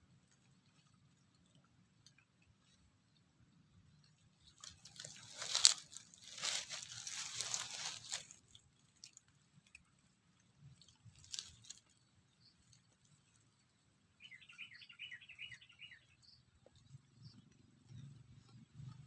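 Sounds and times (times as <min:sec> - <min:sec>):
crunching and chewing: 0:00.0 - 0:13.7.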